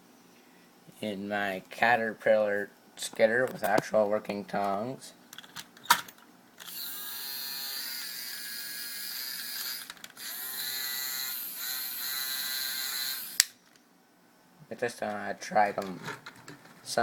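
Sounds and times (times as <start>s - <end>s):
small geared motor whirring: 6.6s - 13.4s.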